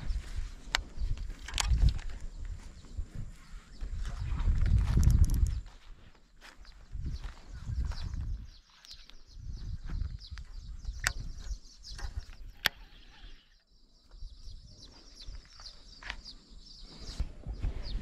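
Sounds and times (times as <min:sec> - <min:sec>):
birds chirping: 0:00.0 - 0:18.0
sharp clicks: 0:00.7 - 0:02.3, 0:10.3 - 0:12.9.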